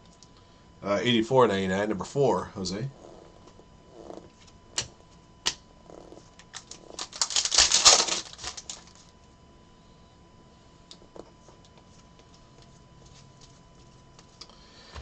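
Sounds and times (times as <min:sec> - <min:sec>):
cards clicking and rustling: 0:06.4 - 0:09.1.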